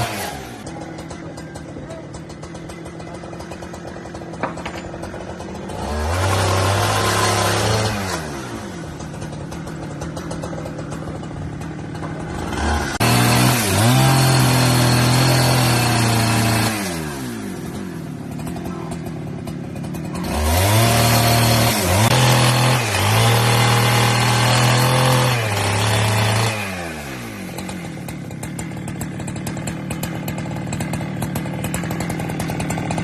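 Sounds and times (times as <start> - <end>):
chainsaw revving and idling: 0.0 - 33.0.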